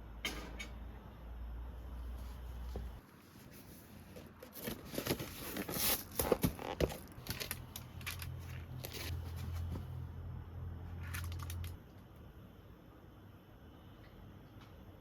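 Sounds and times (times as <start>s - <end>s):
packaging crinkling and tearing: 4.3s - 9.8s, 11.0s - 11.8s.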